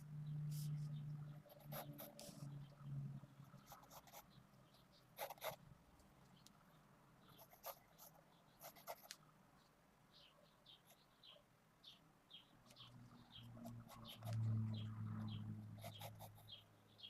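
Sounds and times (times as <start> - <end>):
pencil scratching on paper: 0.5 - 2.4, 3.6 - 4.2, 5.2 - 5.6, 7.4 - 9.2, 15.8 - 16.5.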